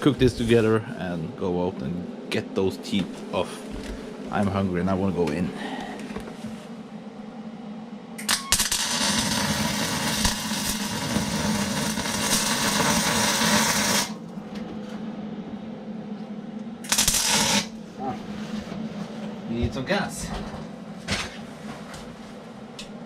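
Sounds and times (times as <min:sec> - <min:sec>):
arc welding crackle: 0:08.2 - 0:14.3, 0:16.8 - 0:17.9.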